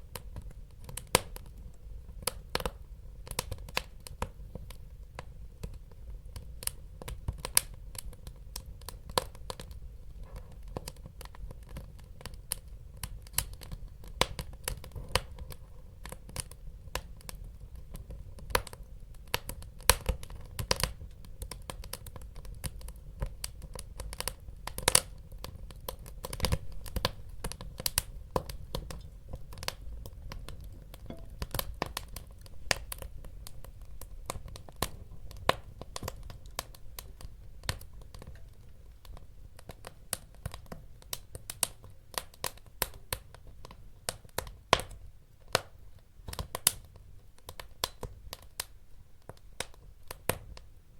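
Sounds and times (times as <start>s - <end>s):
low rumble of flame: 0.0s - 50.7s
wood fire crackling and popping: 0.0s - 50.7s.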